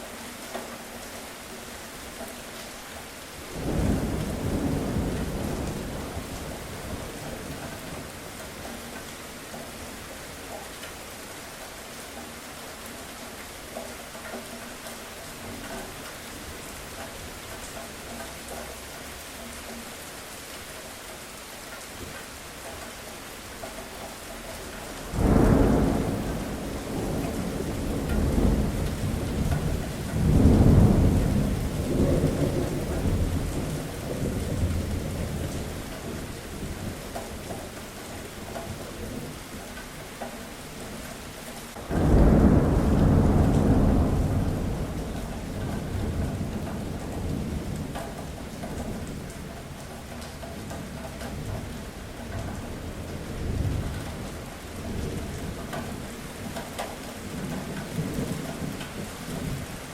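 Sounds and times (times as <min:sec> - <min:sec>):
steady rain: 0:00.0 - 0:59.9
thunder rumbling: 0:03.5 - 0:08.2, 0:25.0 - 0:37.6, 0:41.7 - 0:50.4.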